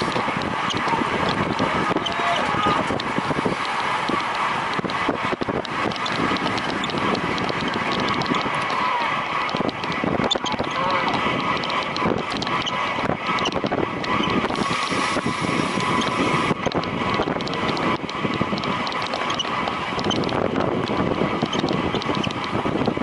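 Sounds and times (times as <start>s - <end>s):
bicycle running noise: 0.0s - 23.0s
wind rushing over microphone: 0.0s - 23.0s.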